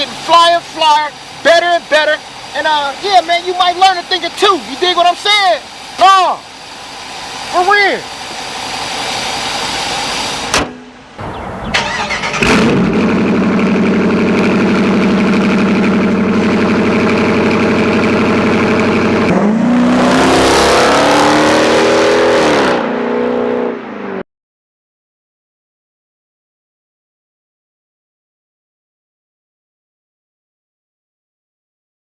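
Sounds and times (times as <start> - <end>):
car engine idling: 0.0 - 19.4
car engine revving: 11.2 - 24.2.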